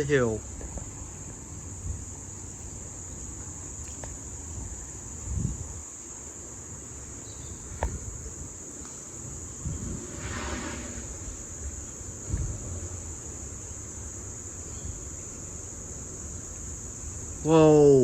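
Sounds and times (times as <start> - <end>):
wind rumbling on microphone: 0.0 - 13.7
insects chirring: 0.0 - 18.0.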